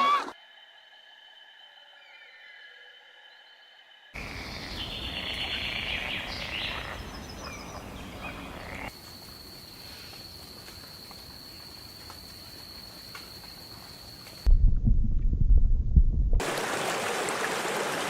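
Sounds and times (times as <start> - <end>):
frogs croaking chorus: 0.3 - 13.8.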